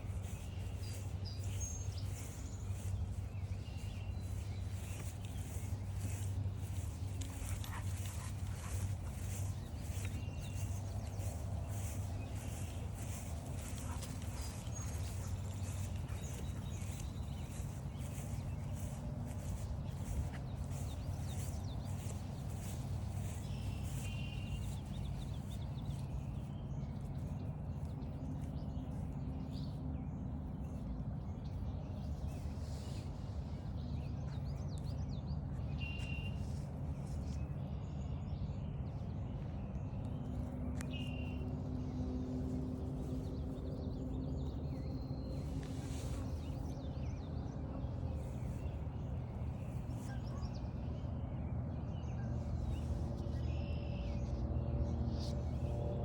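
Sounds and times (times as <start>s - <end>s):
footsteps on forest trail: 0.0s - 28.7s, 42.8s - 50.6s
steady low rumble: 0.0s - 56.0s.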